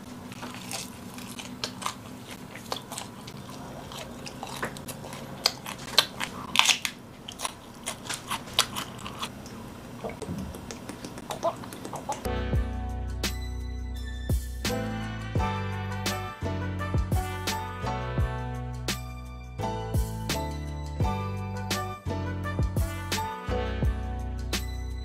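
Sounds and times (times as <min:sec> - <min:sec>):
person biting and chewing: 0:00.1 - 0:09.6, 0:10.4 - 0:12.3
music: 0:12.3 - 0:25.0.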